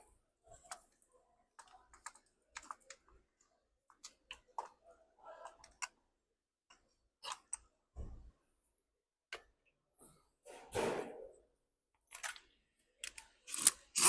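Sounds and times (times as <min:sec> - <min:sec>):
metal parts and tools clicking: 0:12.1 - 0:12.4.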